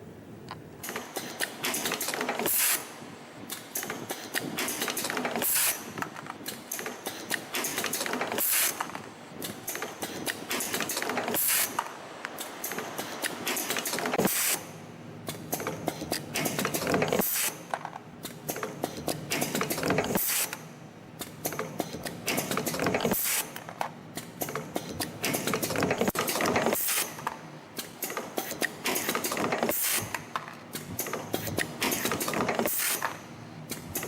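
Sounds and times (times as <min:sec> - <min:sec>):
machine hiss: 0:01.0 - 0:14.8
spring machine clicking and clattering: 0:27.8 - 0:34.0.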